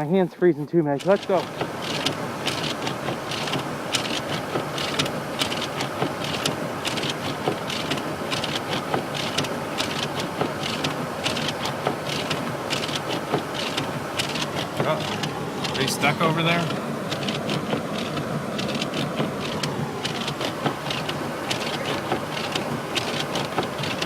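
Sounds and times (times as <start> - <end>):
snow crunching: 0.0 - 24.0.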